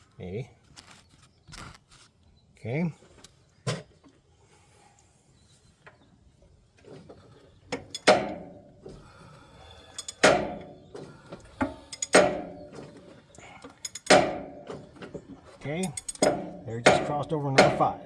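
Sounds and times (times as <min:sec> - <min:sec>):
loud metallic clanks: 0:07.8 - 0:08.8, 0:09.9 - 0:13.1, 0:13.8 - 0:18.0.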